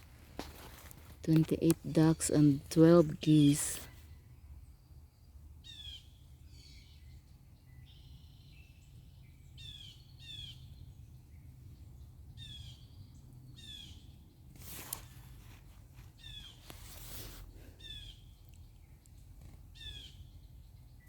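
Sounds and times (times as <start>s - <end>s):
soft bird chirps: 0.4s - 21.0s
songbird calls: 5.6s - 21.0s.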